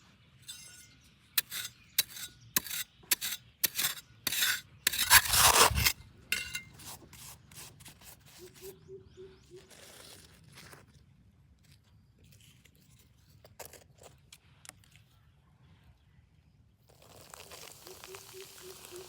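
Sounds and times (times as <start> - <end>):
scraping and rubbing strokes: 0.5 - 8.8.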